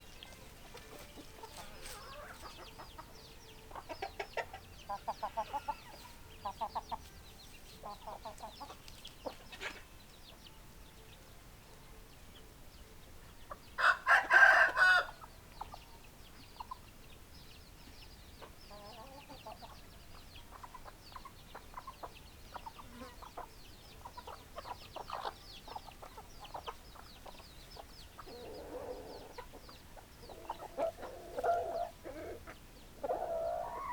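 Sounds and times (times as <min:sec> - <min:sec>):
chickens clucking: 0:00.0 - 0:11.1, 0:13.2 - 0:33.9
loud chicken call: 0:13.8 - 0:15.2.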